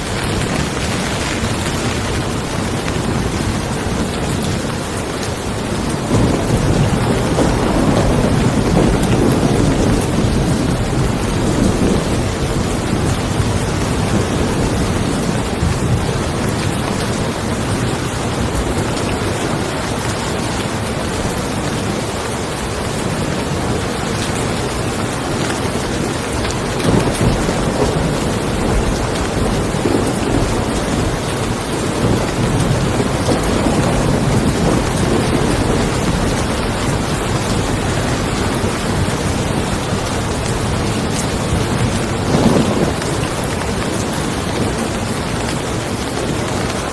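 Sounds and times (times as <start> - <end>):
rain falling on a car: 0.0 - 46.9
thunder rumbling: 0.0 - 46.9.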